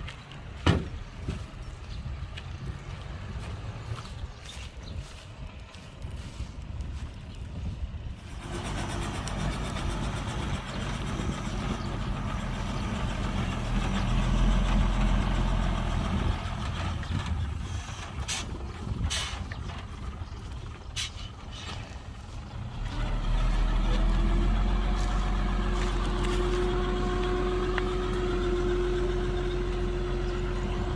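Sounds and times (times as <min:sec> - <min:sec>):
dump truck diesel engine running: 0:07.9 - 0:30.9.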